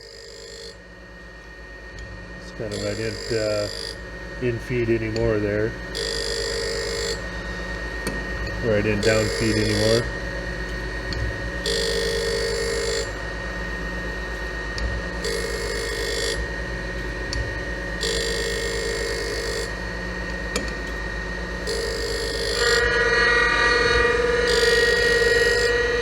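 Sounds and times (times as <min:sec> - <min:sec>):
surface grinder running: 0:02.4 - 0:03.9, 0:08.6 - 0:10.1, 0:21.6 - 0:26.0
hissing ringing grinding: 0:02.4 - 0:07.9, 0:08.5 - 0:10.3, 0:21.6 - 0:26.0.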